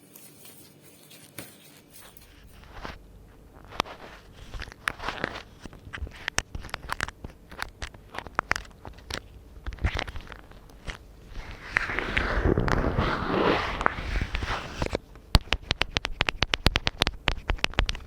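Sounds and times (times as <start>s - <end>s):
crinkly rubber glove rustles: 0.0s - 15.0s
gloved fingers tapping microphone: 15.3s - 18.0s.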